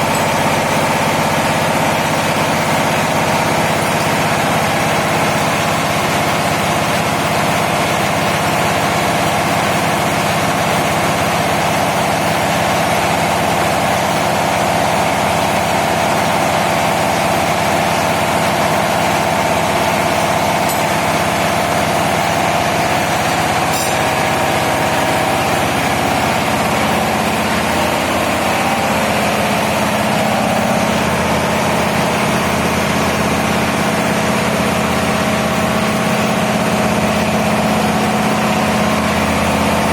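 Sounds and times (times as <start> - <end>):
large diesel engine droning: 0.0 - 39.9.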